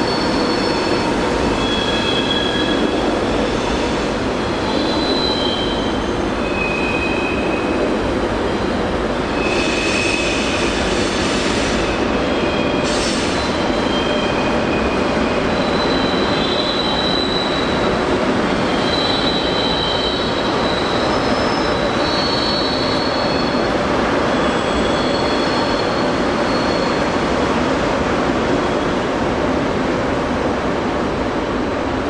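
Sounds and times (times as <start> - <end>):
high wheel squeals: 0.0 - 3.0, 3.6 - 7.8, 9.3 - 17.8, 18.6 - 27.2.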